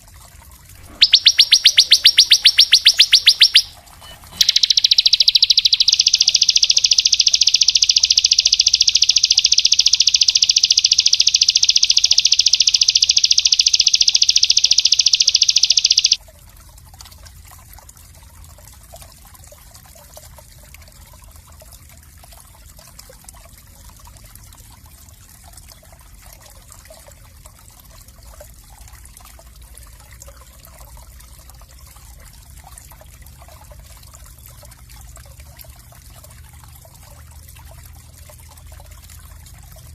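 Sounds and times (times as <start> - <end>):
water trickling: 0.0 - 39.9
songbird rapid trill: 0.8 - 16.2.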